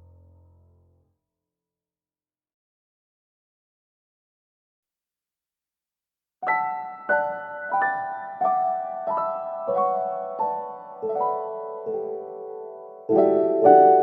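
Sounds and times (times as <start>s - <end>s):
slow solo piano music: 6.4s - 14.0s.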